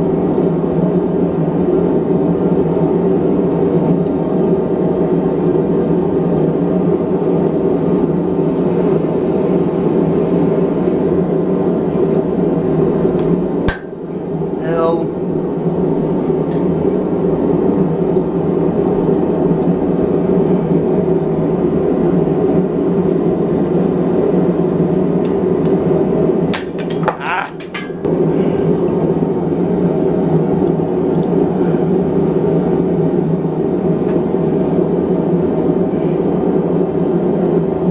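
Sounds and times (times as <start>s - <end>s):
metal clinks: 13.7s - 14.0s, 16.5s - 16.8s, 26.6s - 28.0s.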